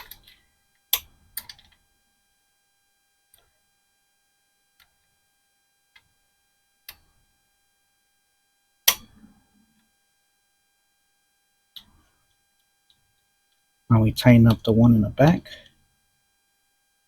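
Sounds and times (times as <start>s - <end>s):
tools clicking on metal parts: 0.0s - 1.8s.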